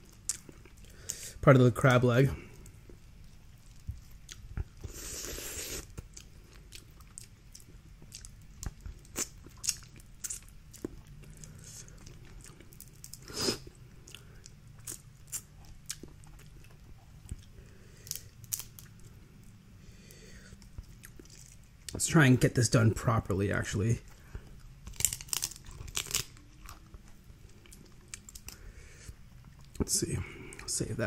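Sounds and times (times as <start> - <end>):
chewing: 2.6 - 19.6, 20.5 - 22.0, 24.0 - 29.9
crab shell cracking: 18.1 - 18.9, 24.8 - 26.9.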